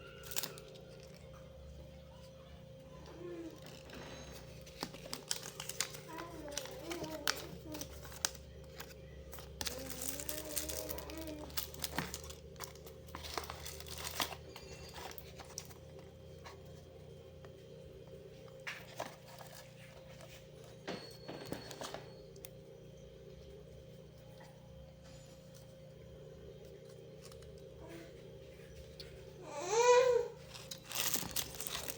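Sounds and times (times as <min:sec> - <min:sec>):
plastic crinkling: 0:00.0 - 0:01.6, 0:03.0 - 0:17.2, 0:18.3 - 0:22.6, 0:30.4 - 0:31.9
small fan motor humming: 0:00.0 - 0:31.9.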